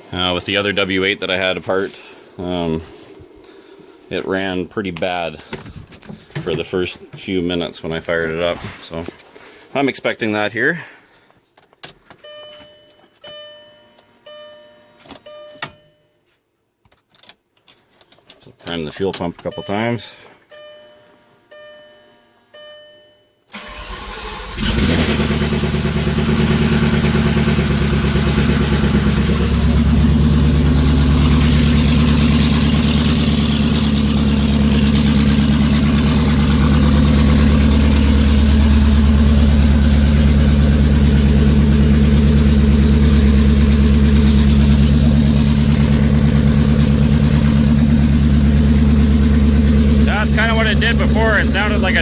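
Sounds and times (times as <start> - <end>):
starter motor cranking: 23.6 - 39.3
fuel pump humming: 23.6 - 52.0
car engine running loudly: 24.5 - 52.0.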